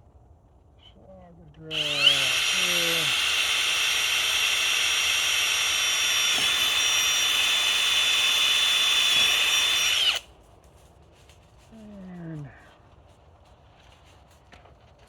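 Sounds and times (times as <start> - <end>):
power drill drilling plastic: 1.7 - 10.2.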